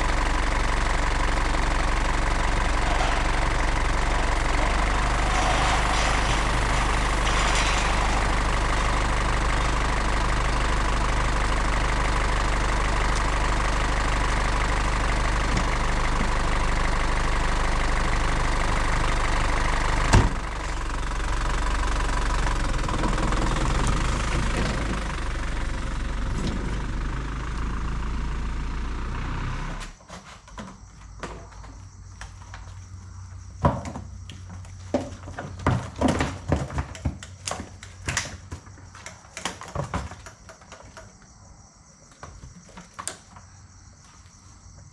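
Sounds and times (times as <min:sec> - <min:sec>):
vehicle engine rumbling: 0:00.0 - 0:30.0.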